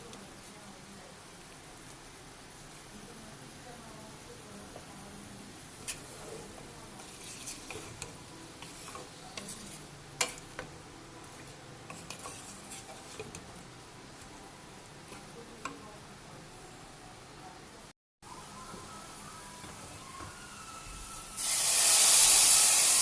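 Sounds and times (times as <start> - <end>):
faint steady hiss: 0.0 - 23.0
spoon clinking and scraping pot: 5.8 - 10.8, 11.4 - 13.5.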